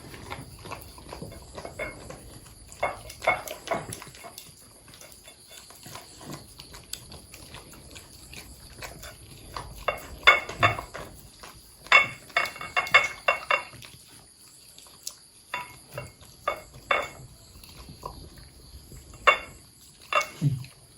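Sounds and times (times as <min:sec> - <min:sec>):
dogs eating and licking: 0:00.0 - 0:20.9
sharp clicks against bowls: 0:19.2 - 0:20.5.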